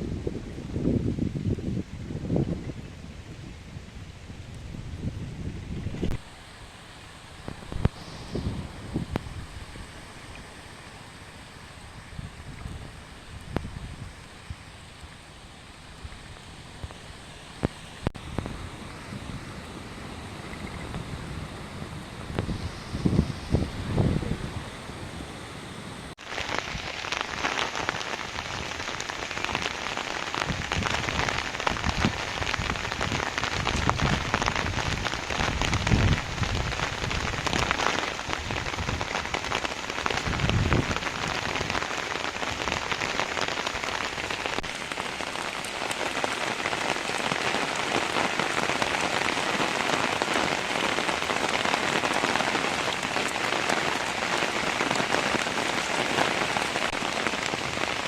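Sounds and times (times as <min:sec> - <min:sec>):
heavy rain patter: 0:00.0 - 0:58.0.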